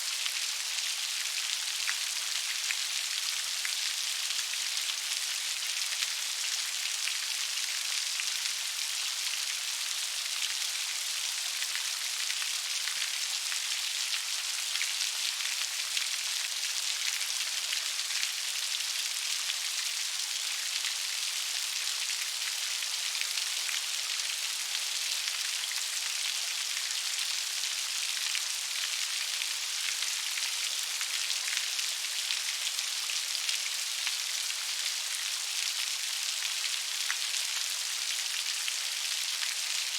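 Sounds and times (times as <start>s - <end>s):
gentle rain pattering: 0.0s - 39.9s.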